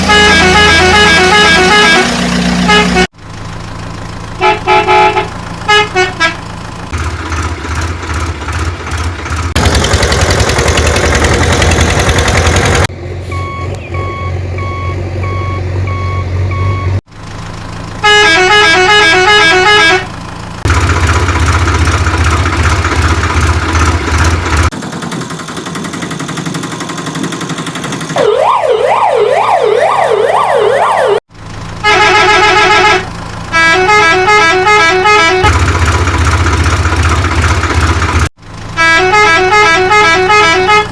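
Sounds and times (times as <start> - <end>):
musical vehicle horn: 0.0 - 3.1, 4.4 - 6.5, 18.0 - 20.2, 31.8 - 35.6, 38.8 - 40.9
low engine hum: 0.0 - 28.5
wailing siren: 28.2 - 31.3.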